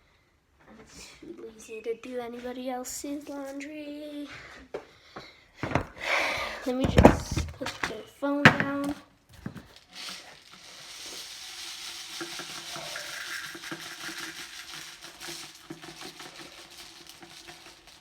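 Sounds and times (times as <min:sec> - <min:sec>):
small knocks: 0:05.6 - 0:06.0, 0:06.7 - 0:09.7
washing machine filling hiss: 0:10.6 - 0:18.0.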